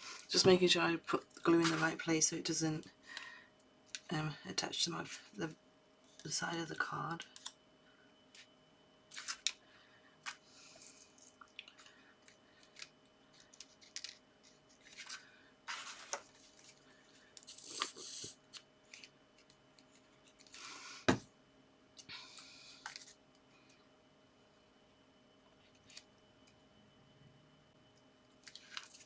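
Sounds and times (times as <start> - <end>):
paper rustling: 12.6 - 16.8.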